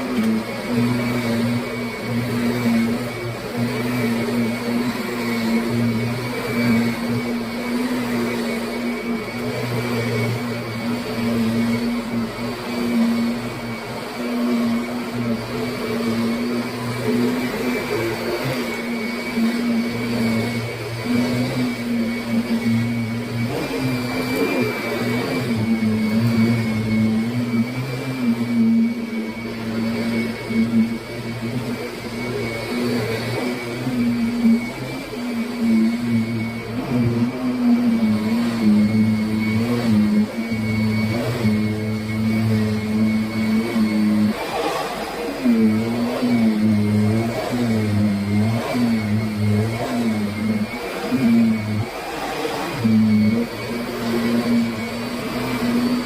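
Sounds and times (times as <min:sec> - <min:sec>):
vacuum cleaner motor whining: 0:00.0 - 0:56.0.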